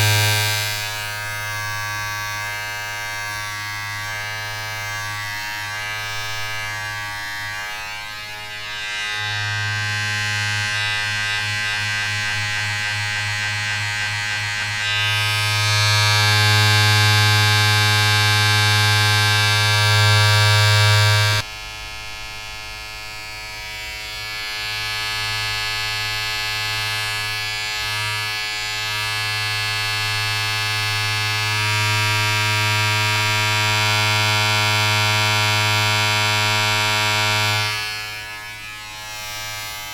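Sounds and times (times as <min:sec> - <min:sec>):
electric buzzing drone: 0:00.0 - 0:39.9.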